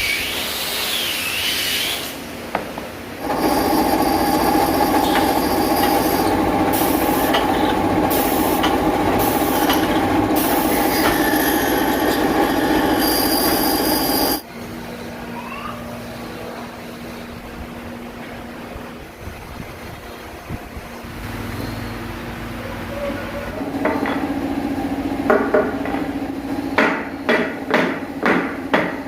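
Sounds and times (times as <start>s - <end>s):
power tool whining on wood: 3.2s - 7.8s, 8.5s - 14.4s.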